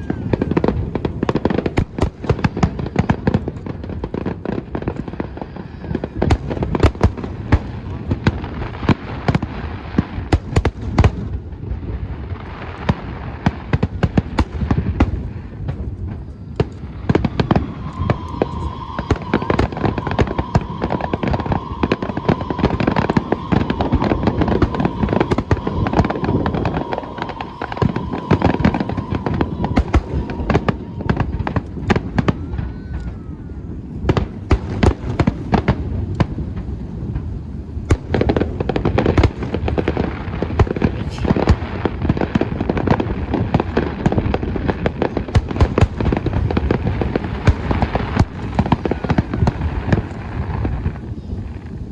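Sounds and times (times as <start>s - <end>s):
fireworks cracks and bangs: 0.0s - 51.9s
low rumble: 15.2s - 34.5s
steady whistling tone: 16.3s - 32.6s.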